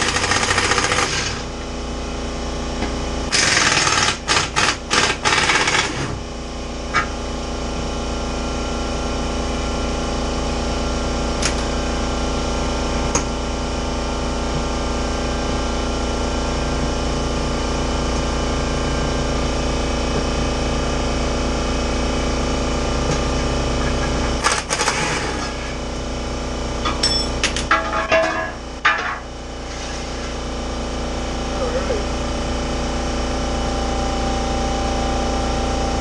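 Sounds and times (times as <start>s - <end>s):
air compressor droning: 0.0s - 36.0s
metal tools clinking: 26.8s - 29.2s.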